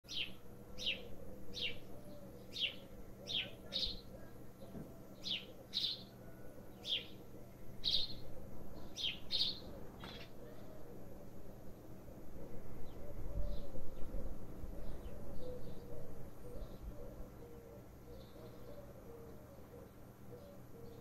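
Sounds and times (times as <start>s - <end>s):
small bird chirping: 0.1s - 6.2s, 7.8s - 10.4s
faint low hum: 0.1s - 21.0s.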